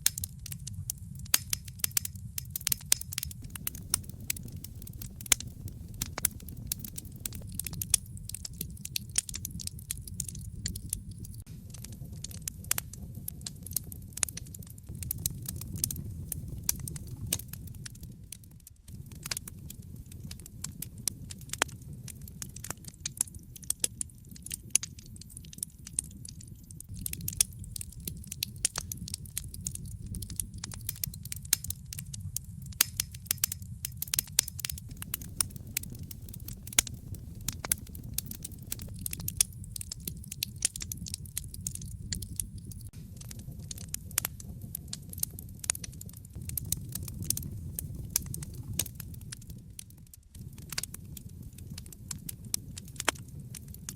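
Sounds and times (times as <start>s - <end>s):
wood fire crackling and popping: 0.0s - 53.9s
low rumble: 3.3s - 14.2s, 14.9s - 20.8s, 26.9s - 32.7s, 34.6s - 44.8s, 46.4s - 49.8s.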